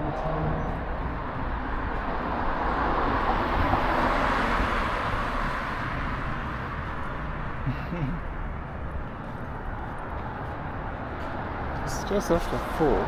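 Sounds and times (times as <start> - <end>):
road traffic rush: 0.0 - 13.0.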